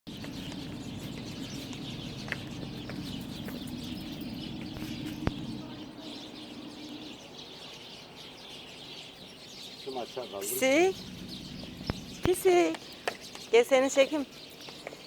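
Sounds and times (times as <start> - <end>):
small birds chirping: 0.1 - 15.0
steady low drone: 10.6 - 13.0.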